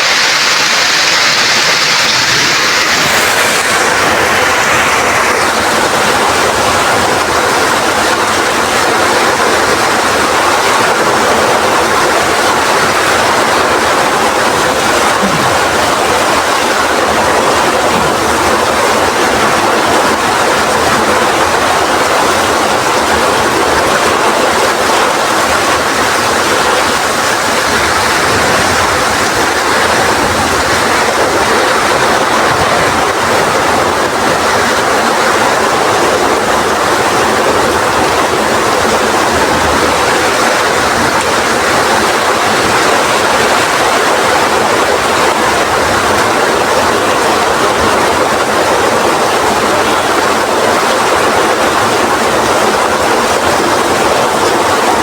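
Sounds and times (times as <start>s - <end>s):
heavy rain: 0.0s - 55.0s
strong wind: 0.0s - 55.0s.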